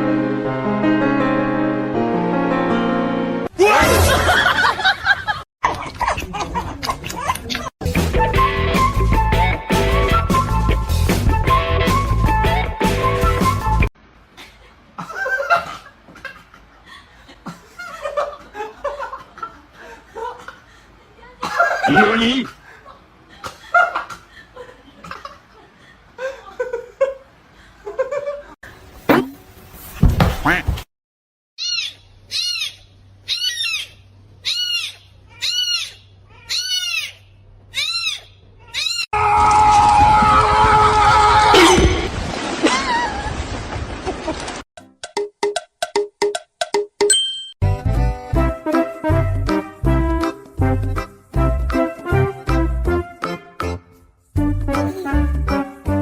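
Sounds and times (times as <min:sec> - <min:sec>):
animal calling high and short: 0:31.6 - 0:39.1
person laughing quietly: 0:54.8 - 0:55.3.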